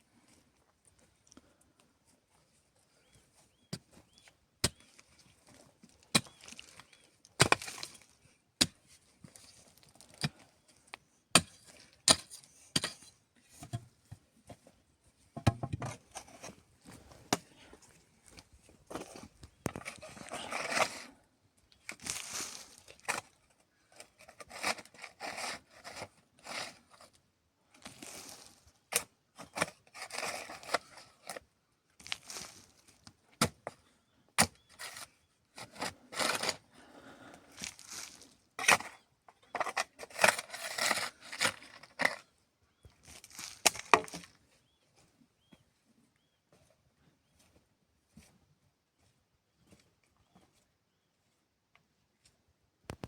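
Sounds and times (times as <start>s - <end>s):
rustling and scraping: 11.5s - 27.2s, 27.8s - 33.9s, 34.6s - 36.7s, 37.5s - 51.5s.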